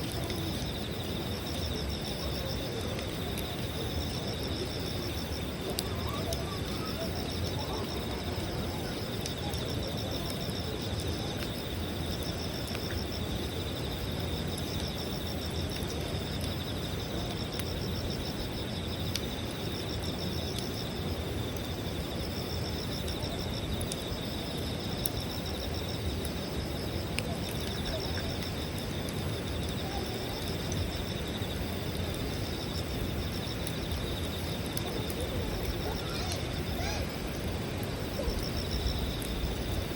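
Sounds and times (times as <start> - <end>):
campfire crackling and popping: 0.0 - 39.9
insects chirping: 0.0 - 39.9.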